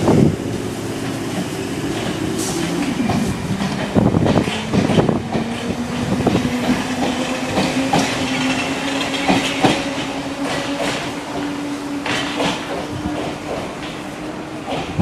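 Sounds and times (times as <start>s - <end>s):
train motor hum: 0.0s - 15.0s
wheels clicking over rails: 0.5s - 15.0s.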